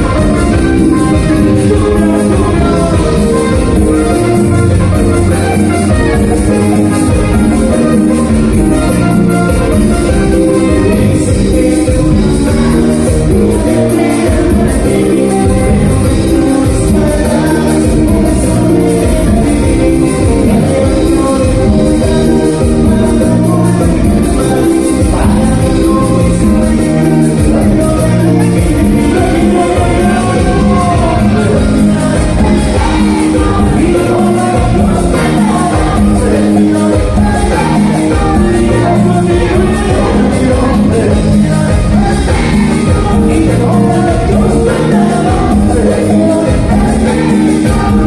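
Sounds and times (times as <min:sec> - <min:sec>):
live band music with singing: 0:00.0 - 0:48.0.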